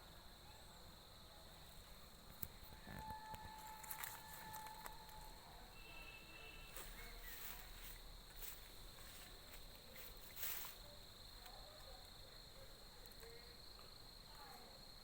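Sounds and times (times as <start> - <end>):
high-pitched insect drone: 2.5 - 10.8.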